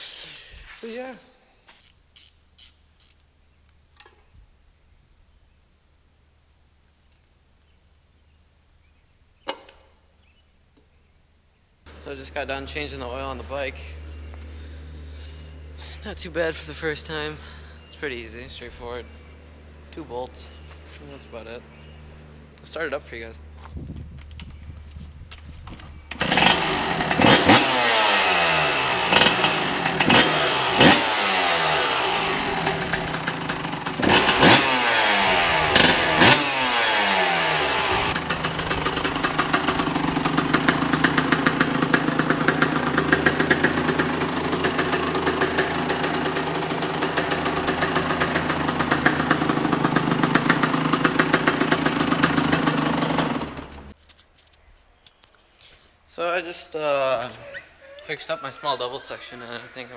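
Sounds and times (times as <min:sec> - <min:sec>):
dirt bike engine revving and idling: 0:11.9 - 0:23.6, 0:25.9 - 0:54.0.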